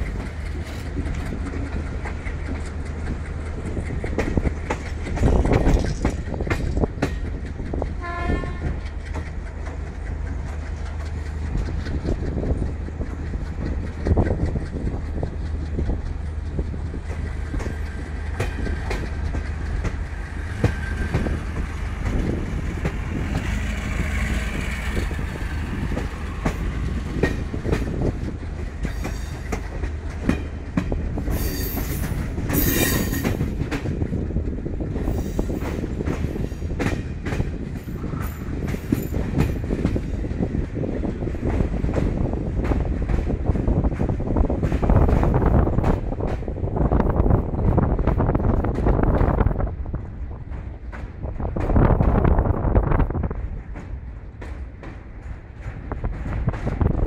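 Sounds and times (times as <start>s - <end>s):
wheels clattering over rail joints: 0.0s - 46.6s
train rumble: 0.0s - 57.0s
train horn: 8.0s - 8.8s, 32.5s - 33.3s
high-pitched wheel squeal: 31.4s - 33.3s.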